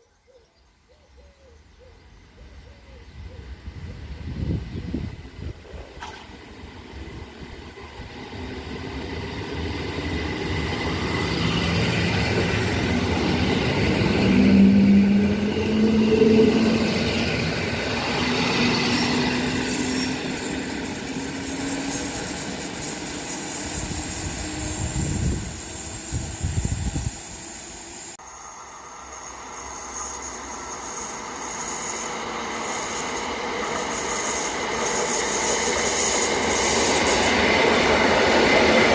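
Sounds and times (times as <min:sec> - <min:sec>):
train wheel and motor noise: 0:02.9 - 0:38.9.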